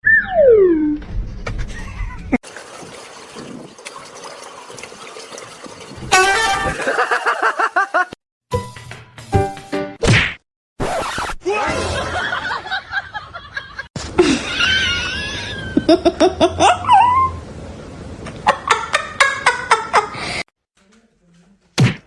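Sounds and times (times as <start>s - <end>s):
person laughing: 6.7s - 8.2s, 11.6s - 17.3s.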